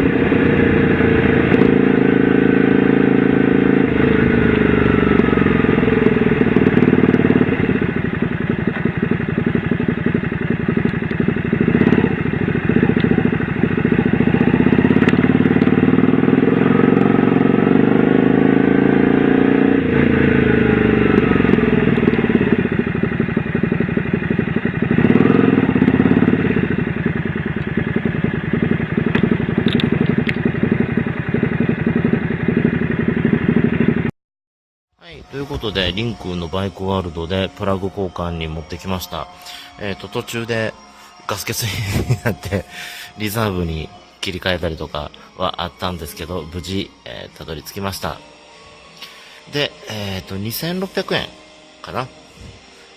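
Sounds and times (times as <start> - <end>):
motorcycle engine revving: 0.0 - 34.1, 35.2 - 52.9
riding noise: 35.0 - 48.2.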